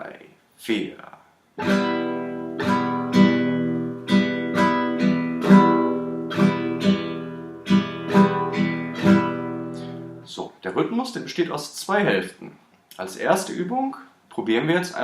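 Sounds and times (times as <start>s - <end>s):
acoustic guitar strumming: 1.6s - 10.3s.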